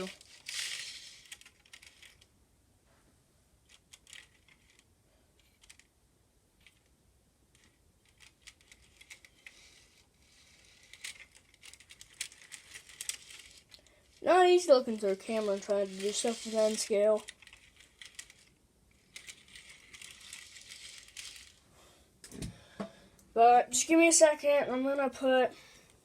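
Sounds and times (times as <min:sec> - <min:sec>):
faint clicks of small objects: 0:00.0 - 0:02.3, 0:03.6 - 0:05.9, 0:07.5 - 0:14.3.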